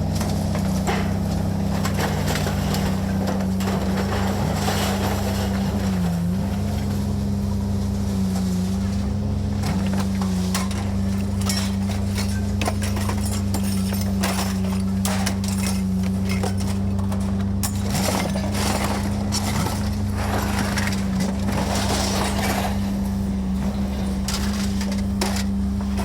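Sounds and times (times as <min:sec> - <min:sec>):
engine running: 0:00.0 - 0:26.0
knocks and clanks: 0:00.1 - 0:06.3, 0:09.6 - 0:26.0.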